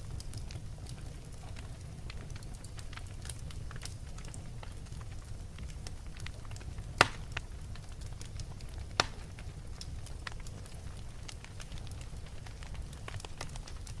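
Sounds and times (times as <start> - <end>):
fire crackling and popping: 0.0 - 14.0
wood fire rumbling: 0.0 - 14.0.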